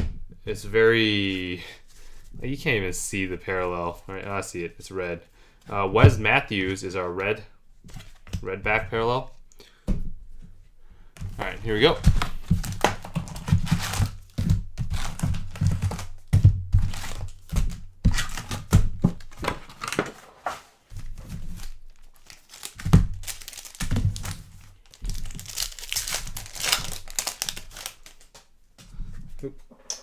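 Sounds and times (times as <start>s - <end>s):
wrappers crinkling and tearing: 11.4s - 17.5s, 18.1s - 28.5s.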